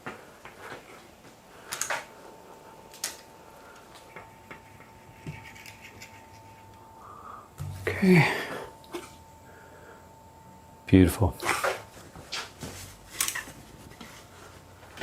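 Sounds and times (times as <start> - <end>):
faint steady high tone: 2.2 - 11.4.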